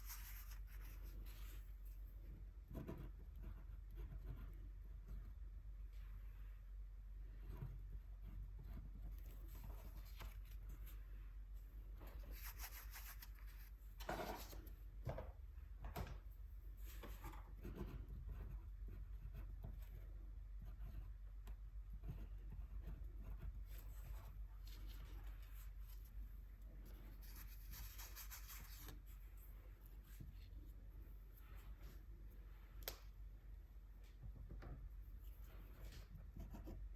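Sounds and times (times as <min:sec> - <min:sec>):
paintbrush strokes on paper: 0:00.0 - 0:02.2, 0:12.0 - 0:13.8, 0:22.1 - 0:32.8.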